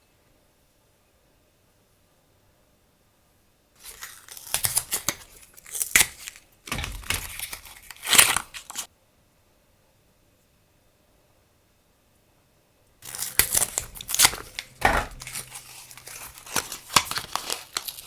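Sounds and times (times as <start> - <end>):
packaging crinkling and tearing: 3.8 - 8.9, 13.0 - 18.0.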